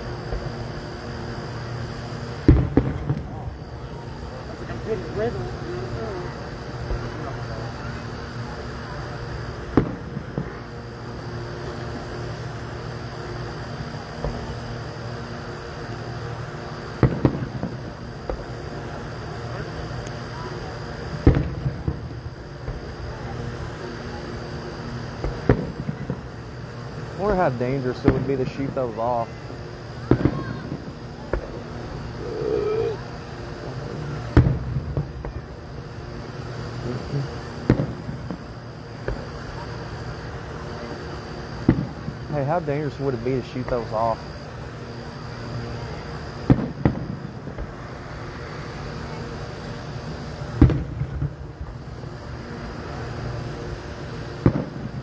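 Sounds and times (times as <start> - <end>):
distant fireworks bangs: 0.0 - 8.3, 9.0 - 44.2, 45.8 - 55.0
steady low hum: 0.0 - 55.0
short wavering hum: 31.8 - 34.3.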